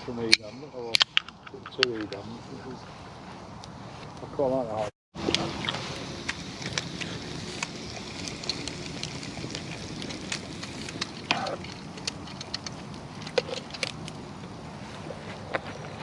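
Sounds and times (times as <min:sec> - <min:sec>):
campfire crackling: 0:05.2 - 0:16.0.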